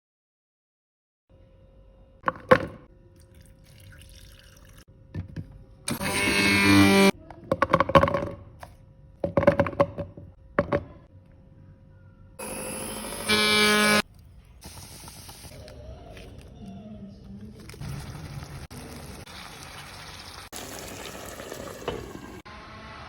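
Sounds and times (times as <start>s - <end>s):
water pouring into a container: 3.2s - 4.9s, 17.8s - 22.4s.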